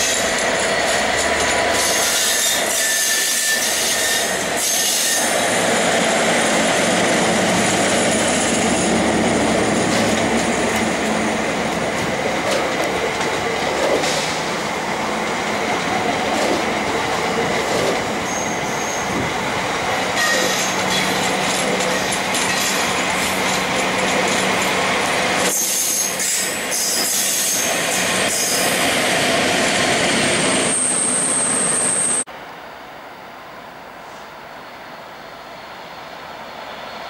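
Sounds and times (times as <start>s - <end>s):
train wheels clicking over rail joints: 0.0s - 30.2s
diesel locomotive passing: 0.0s - 32.6s
thin wheel squeal: 1.8s - 5.3s, 18.2s - 19.1s, 20.2s - 21.2s.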